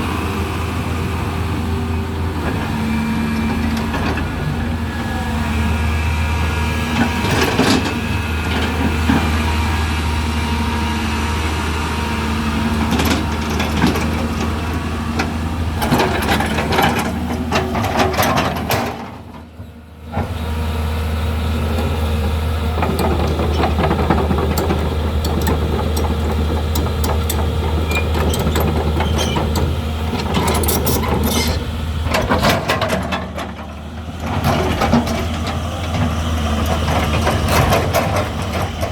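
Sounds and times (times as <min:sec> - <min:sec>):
excavator diesel engine running: 0:00.0 - 0:38.9
excavator knocks and clanks digging: 0:02.4 - 0:04.6, 0:06.9 - 0:09.5, 0:12.4 - 0:20.6, 0:21.5 - 0:38.9.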